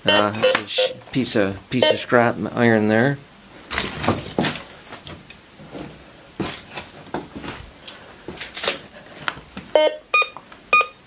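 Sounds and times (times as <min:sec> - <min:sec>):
metal detector beeps: 0:00.1 - 0:01.0, 0:09.8 - 0:11.0.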